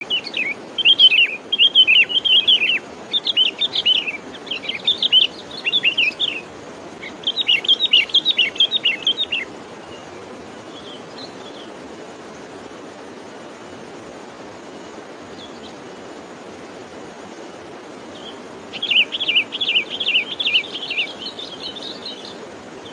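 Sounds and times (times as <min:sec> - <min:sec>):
bird chirping: 0:00.0 - 0:11.8, 0:14.8 - 0:15.8, 0:18.1 - 0:22.9
low background noise: 0:00.0 - 0:22.9.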